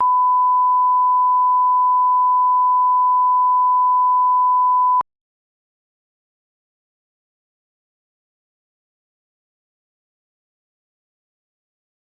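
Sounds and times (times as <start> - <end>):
test tone beep: 0.0 - 5.0.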